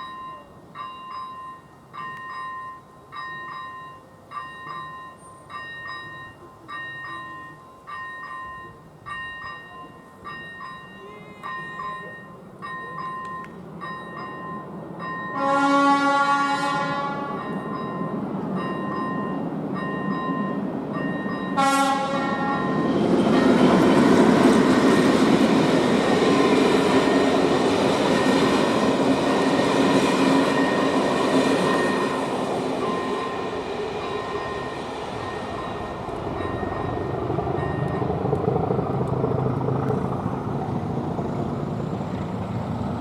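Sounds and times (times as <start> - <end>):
crossing warning bell pulsing: 0.0 - 43.0
train rumble passing: 12.4 - 43.0
train horn: 15.3 - 17.6, 21.6 - 23.9.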